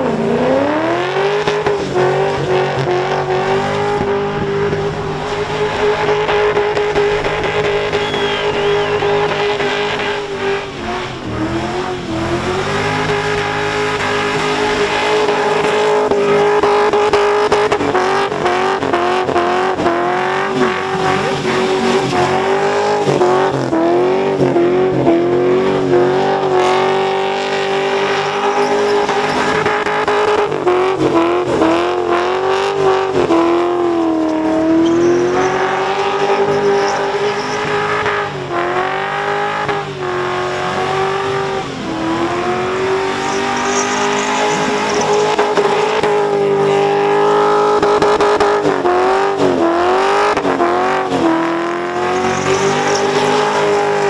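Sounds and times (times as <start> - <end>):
car engine at high revs: 0.0 - 54.0
tyres squealing and hissing: 4.8 - 16.5, 28.1 - 29.8, 34.7 - 38.2, 43.0 - 46.8, 52.0 - 54.0.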